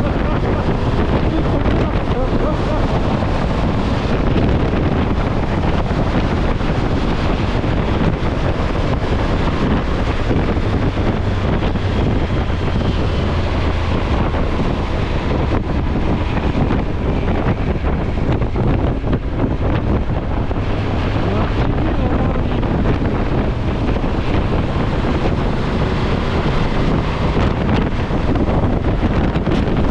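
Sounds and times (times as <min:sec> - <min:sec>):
wind buffeting microphone: 0:00.0 - 0:29.9.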